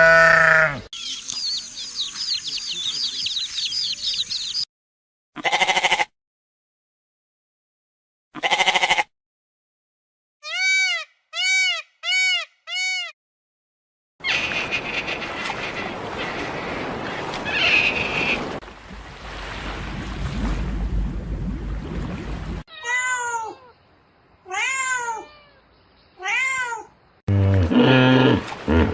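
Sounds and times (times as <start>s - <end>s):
animal bleating: 0.0s - 0.9s, 5.4s - 6.1s, 8.4s - 9.1s
noisy farm animals: 0.0s - 4.7s, 5.4s - 6.1s, 8.4s - 9.0s.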